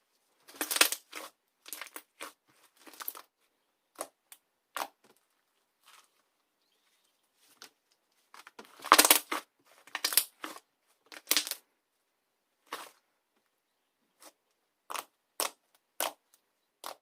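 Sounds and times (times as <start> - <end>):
crusty slime crunching: 0.5 - 3.3, 8.6 - 11.6, 14.2 - 16.2, 16.8 - 17.0.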